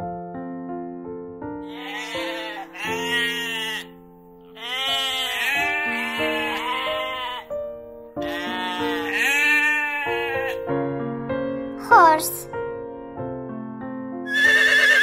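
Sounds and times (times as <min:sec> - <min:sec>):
background music: 0:00.0 - 0:15.0
sheep bleating: 0:01.7 - 0:03.9, 0:04.5 - 0:07.5, 0:08.2 - 0:10.6, 0:14.3 - 0:15.0.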